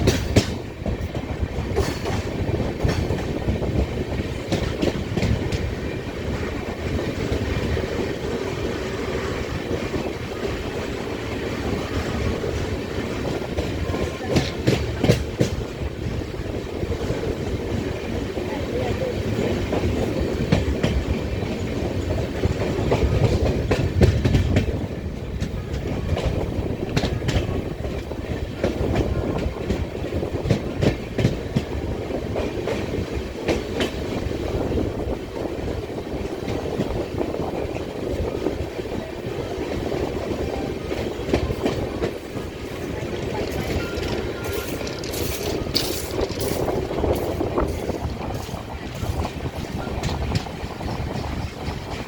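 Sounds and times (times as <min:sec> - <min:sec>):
train rumbling on track: 0:00.0 - 0:52.0
wheels knocking over rail joints: 0:41.3 - 0:47.4.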